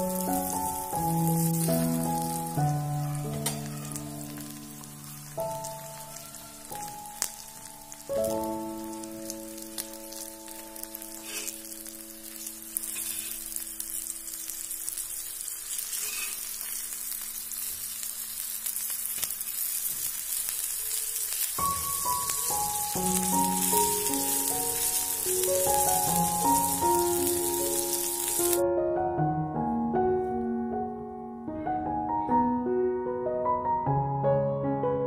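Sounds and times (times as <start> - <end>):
background music: 0.0 - 12.8, 21.6 - 35.0
banana slices sizzling in oil: 0.0 - 28.6
steel spatula scraping griddle: 11.2 - 11.6, 12.8 - 13.5, 15.7 - 16.8.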